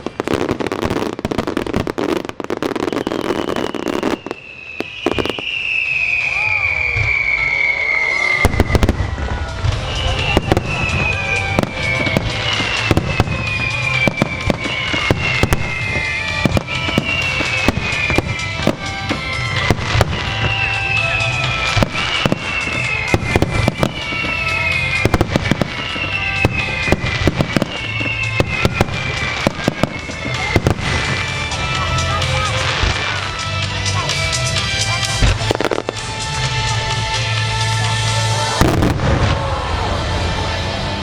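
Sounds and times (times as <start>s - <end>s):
fireworks bursting: 0.0s - 41.0s
high falling whistle tone: 2.8s - 18.6s.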